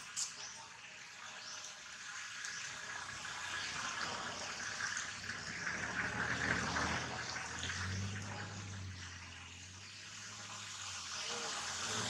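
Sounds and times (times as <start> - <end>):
rain falling: 3.1 - 12.0.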